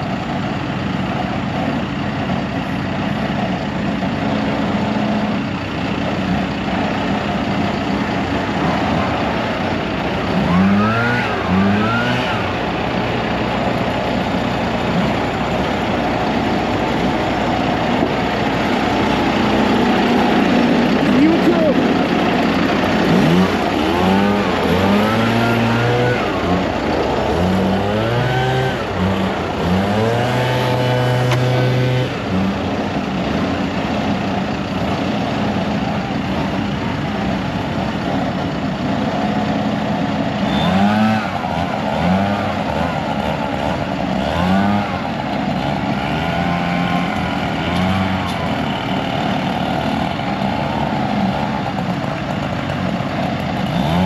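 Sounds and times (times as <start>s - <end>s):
heavy machinery engine under load: 0.0s - 54.0s.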